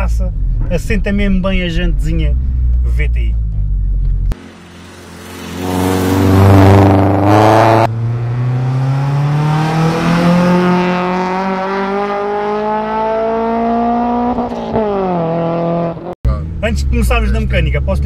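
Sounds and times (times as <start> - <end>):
car engine revving hard: 4.4 - 16.1.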